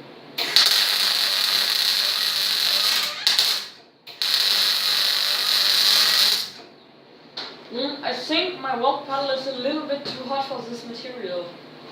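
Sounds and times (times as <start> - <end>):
welding arc crackling: 0.4 - 6.7.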